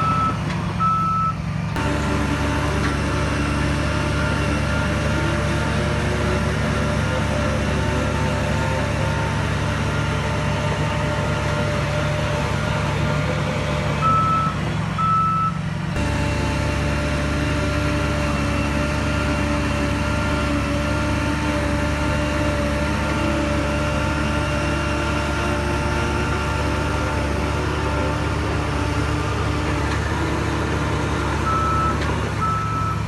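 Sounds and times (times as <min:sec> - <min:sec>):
reversing alarm beeps: 0:00.0 - 0:01.4, 0:14.0 - 0:15.6, 0:31.5 - 0:33.0
diesel engine running: 0:00.0 - 0:33.0.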